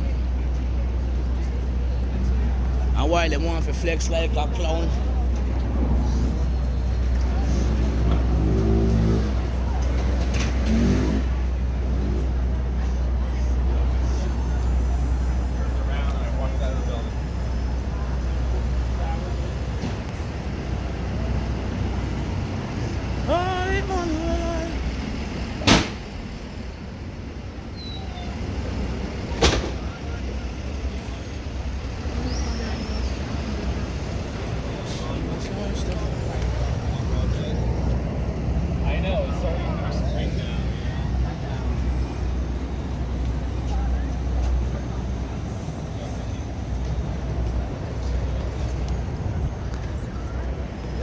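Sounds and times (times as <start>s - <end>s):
street traffic rumble: 0.0s - 51.0s
short sharp thump: 25.6s - 26.0s.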